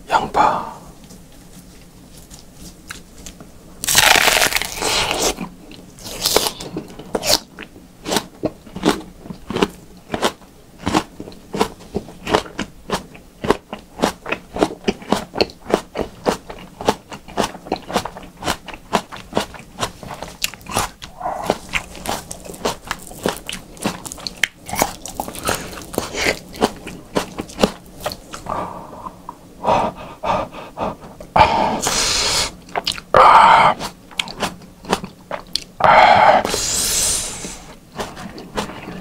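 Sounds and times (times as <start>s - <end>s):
crunchy chewing of onion: 1.0s - 30.0s, 30.8s - 39.0s
crunchy onion bite: 2.3s - 28.5s.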